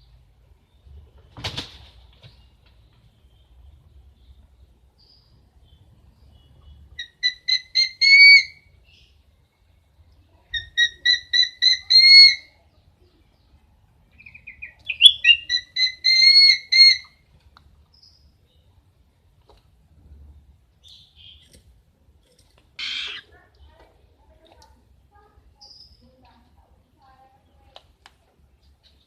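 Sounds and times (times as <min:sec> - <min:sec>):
bird whistling repeated notes: 0:07.0 - 0:08.7, 0:14.2 - 0:17.1.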